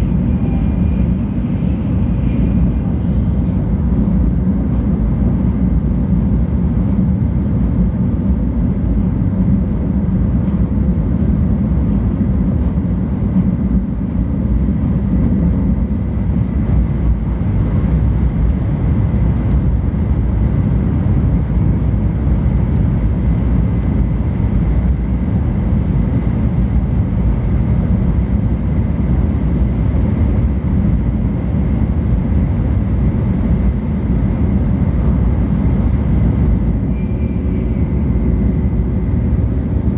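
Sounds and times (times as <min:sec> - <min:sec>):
train cabin low rumble: 0:00.0 - 0:39.9
faint high whines: 0:36.7 - 0:39.9.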